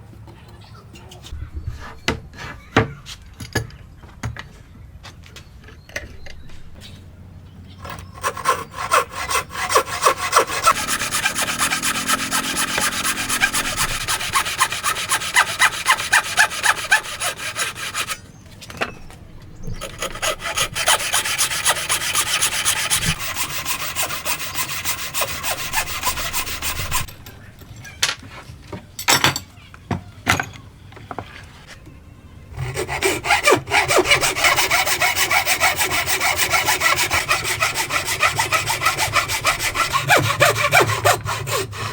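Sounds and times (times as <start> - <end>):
hand saw cutting wood: 7.8 - 18.2, 19.7 - 27.1, 32.6 - 41.9.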